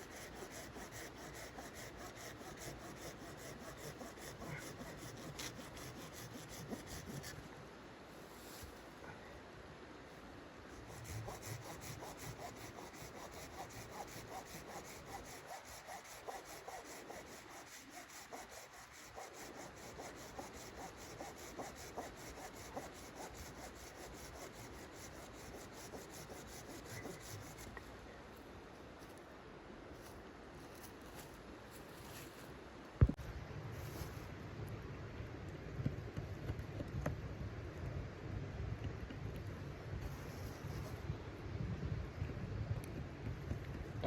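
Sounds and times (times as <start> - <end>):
saw cutting wood: 0.0 - 7.3, 10.8 - 27.6.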